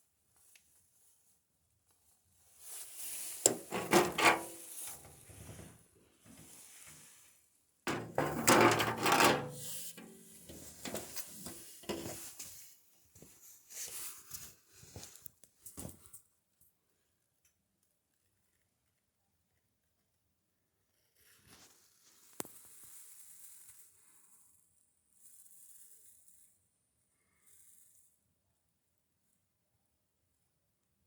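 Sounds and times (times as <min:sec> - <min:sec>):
objects rubbing and scraping: 0:02.8 - 0:07.1, 0:07.9 - 0:12.6.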